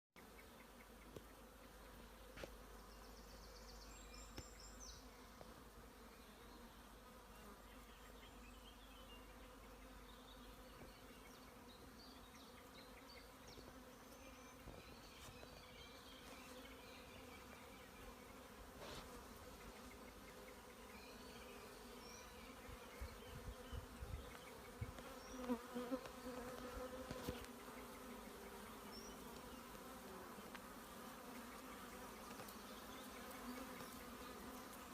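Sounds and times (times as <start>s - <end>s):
bees buzzing: 9.2s - 34.9s.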